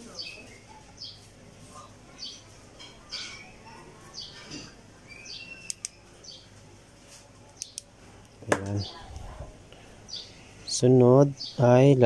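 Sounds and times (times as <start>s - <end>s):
small birds chirping: 0.0s - 6.7s, 7.4s - 12.0s
sharp clicks: 5.6s - 6.0s, 7.6s - 7.9s.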